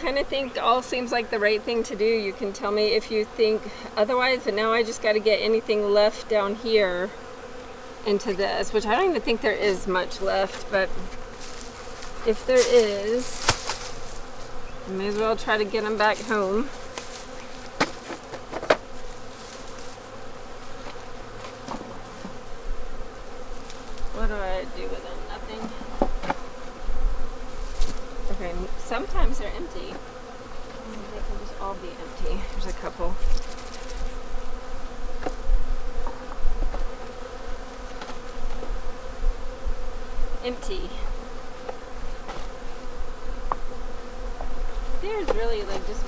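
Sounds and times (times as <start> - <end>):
honeybees buzzing: 0.0 - 46.0
sharp knocks: 17.8 - 18.8.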